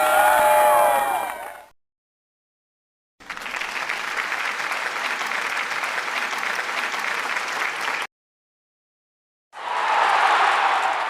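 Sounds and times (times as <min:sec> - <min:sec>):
crowd clapping: 0:03.2 - 0:08.1, 0:10.0 - 0:11.0.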